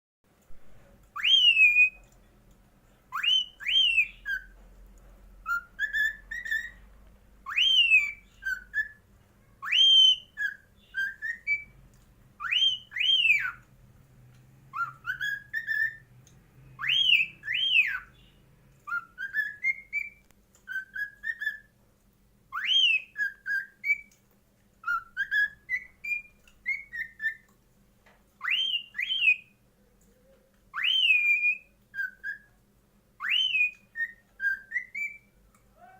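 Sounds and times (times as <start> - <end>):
cockatiel whistling a tune: 1.1 - 2.0, 3.1 - 4.6, 5.4 - 6.8, 7.4 - 11.8, 12.4 - 13.6, 14.7 - 16.1, 16.8 - 21.8, 22.5 - 24.2, 24.8 - 27.5, 28.4 - 29.6, 30.7 - 32.6, 33.2 - 35.9.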